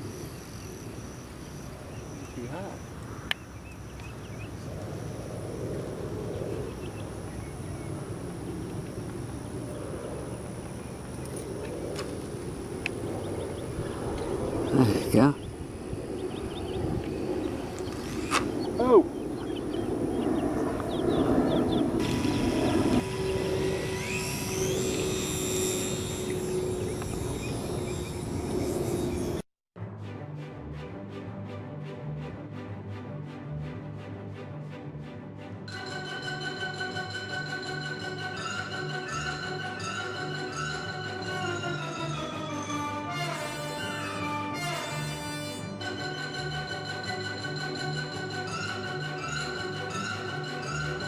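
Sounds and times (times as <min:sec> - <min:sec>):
wind rumble on microphone: 0:01.6 - 0:24.0
higher rising whine: 0:04.2 - 0:29.4
model plane motor droning: 0:19.9 - 0:29.4, 0:43.2 - 0:45.8.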